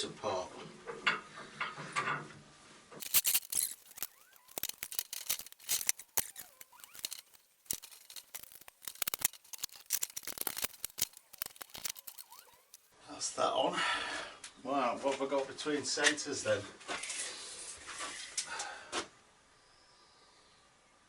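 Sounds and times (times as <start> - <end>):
metal clicks and clinks: 3.0 - 12.9.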